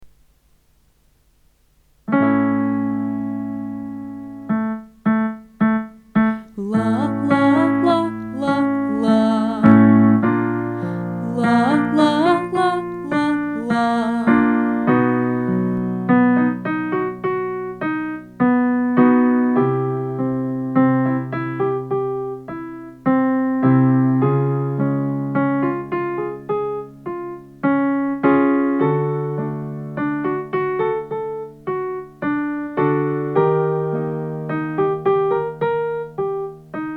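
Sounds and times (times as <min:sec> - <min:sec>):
piano chords: 0:02.1 - 0:27.5
person singing: 0:06.2 - 0:15.1.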